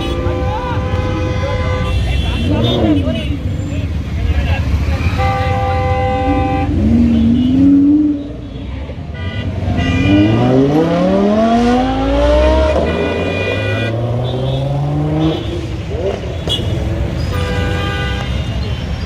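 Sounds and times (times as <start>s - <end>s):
car horns honking: 0.0s - 4.0s, 4.7s - 19.0s
sports car engine revving: 10.0s - 16.2s.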